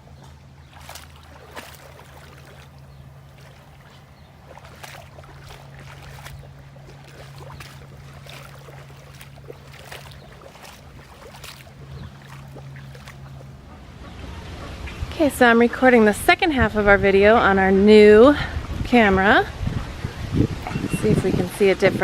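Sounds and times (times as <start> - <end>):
splashing in shallow water: 0.0 - 15.2
steady low hum: 0.0 - 22.0.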